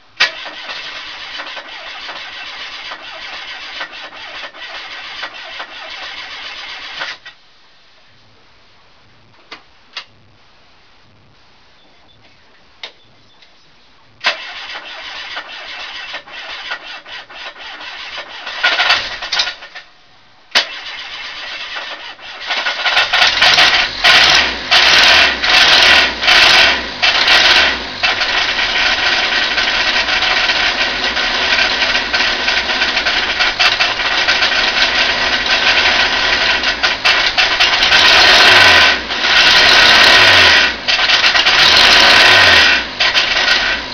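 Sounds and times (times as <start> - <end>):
engine cranking on starter: 0.2 - 7.3, 14.2 - 19.9, 20.5 - 43.9
car engine revving and running: 22.5 - 43.9
engine knocking: 22.6 - 43.8.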